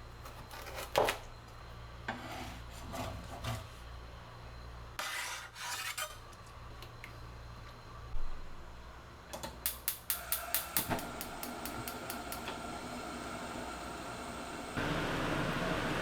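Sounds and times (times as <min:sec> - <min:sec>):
appliance dial clicking: 0:09.6 - 0:13.0
loud fan noise: 0:09.8 - 0:16.0
faint steady hum: 0:10.2 - 0:16.0.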